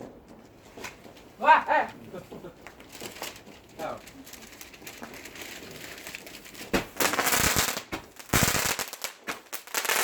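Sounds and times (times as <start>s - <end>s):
fireworks crackling: 3.4s - 10.0s.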